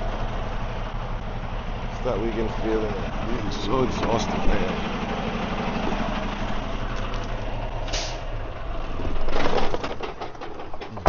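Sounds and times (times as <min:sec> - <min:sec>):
truck diesel engine idling: 0:00.0 - 0:09.3
short hiss: 0:07.9 - 0:08.2
rustling and clicking: 0:09.1 - 0:11.0.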